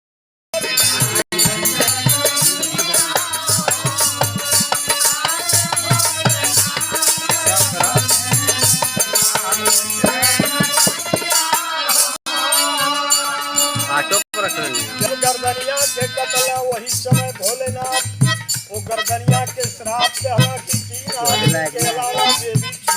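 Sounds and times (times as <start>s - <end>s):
folk music melody: 0.6s - 22.9s
hand drum beat: 1.3s - 11.6s, 17.0s - 22.9s.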